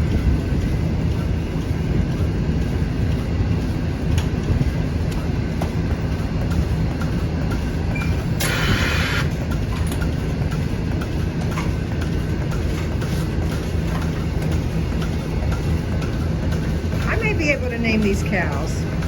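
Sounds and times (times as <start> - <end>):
vacuum pump humming: 0.0 - 19.0.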